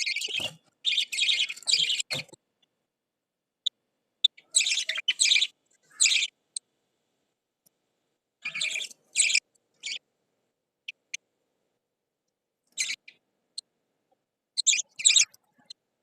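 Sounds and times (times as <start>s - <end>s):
lovebirds chirping: 0.0s - 2.7s, 3.6s - 6.6s, 8.4s - 10.0s, 10.8s - 11.2s, 12.6s - 13.7s, 14.5s - 15.8s.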